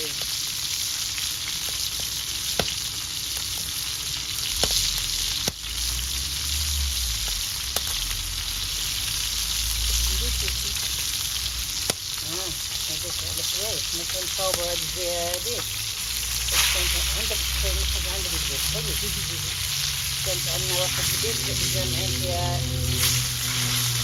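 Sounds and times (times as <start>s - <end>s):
food frying in hot oil: 0.0s - 24.0s
low rumble: 15.8s - 24.0s.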